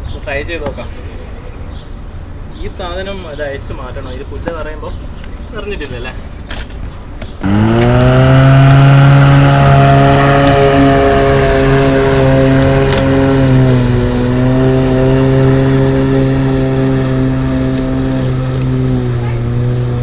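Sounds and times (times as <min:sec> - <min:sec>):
electric lawn mower whine: 0:07.4 - 0:20.0.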